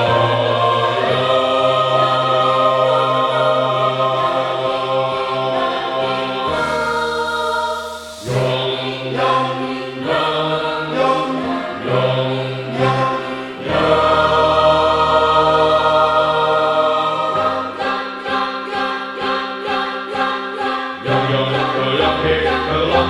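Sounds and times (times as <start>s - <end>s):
choir singing: 0.0s - 23.0s
soft hiss: 6.5s - 9.0s.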